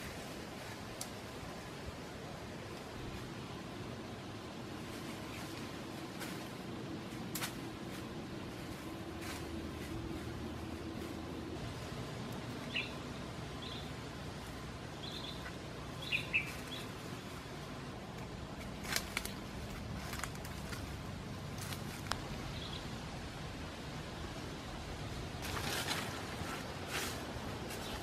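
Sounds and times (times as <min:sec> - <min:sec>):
twigs snapping and leaves rustling: 0:04.9 - 0:11.2, 0:18.1 - 0:22.4, 0:25.4 - 0:28.0
bird chirps: 0:12.6 - 0:13.0, 0:15.0 - 0:16.9.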